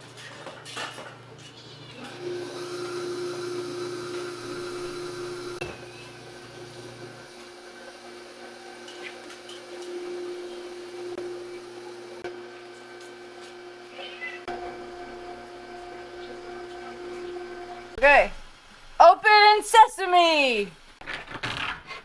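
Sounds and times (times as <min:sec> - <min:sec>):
motor whining: 0:02.0 - 0:19.0.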